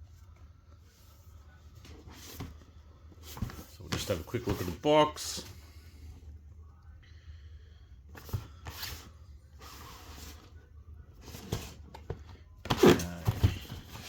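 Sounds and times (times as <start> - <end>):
cardboard box rustling: 11.2 - 14.0
box knocks and bumps: 12.6 - 14.0.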